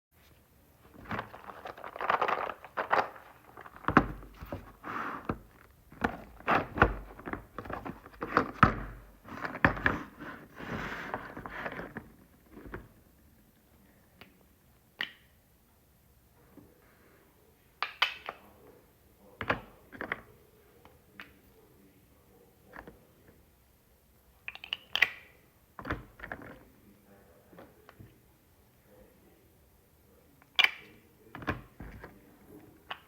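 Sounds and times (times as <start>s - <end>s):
plastic toy eggs knocking and rattling: 0.9s - 10.4s.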